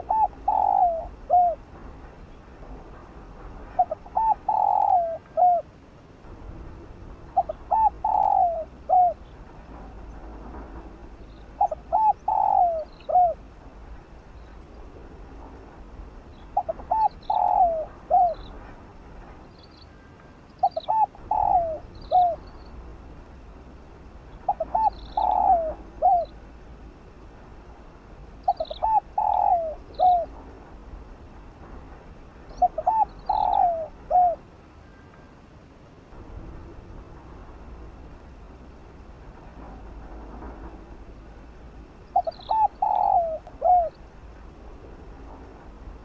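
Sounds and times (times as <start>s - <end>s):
dove cooing: 0.0s - 1.6s, 3.7s - 5.7s, 7.4s - 9.3s, 11.6s - 13.4s, 16.6s - 18.6s, 20.6s - 22.4s, 24.4s - 26.4s, 28.4s - 30.4s, 32.6s - 34.4s, 42.2s - 44.0s.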